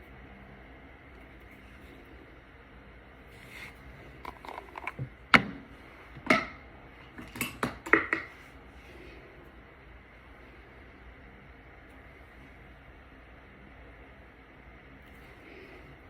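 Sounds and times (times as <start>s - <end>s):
plastic containers clicking: 4.2s - 5.6s
containers tapped on hard surface: 7.6s - 8.3s.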